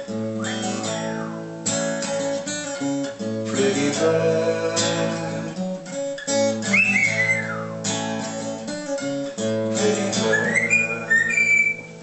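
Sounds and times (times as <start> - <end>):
acoustic guitar strumming: 0.0 - 12.0
high whistled notes: 0.3 - 1.5, 6.6 - 8.0, 10.1 - 12.0.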